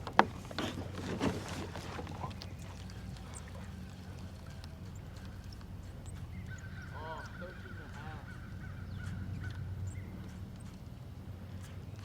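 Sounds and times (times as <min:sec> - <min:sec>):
kayak knocks: 0:00.0 - 0:03.6
bird calling: 0:00.0 - 0:10.8
steady low hum: 0:00.0 - 0:12.0
water sounds: 0:00.0 - 0:12.0.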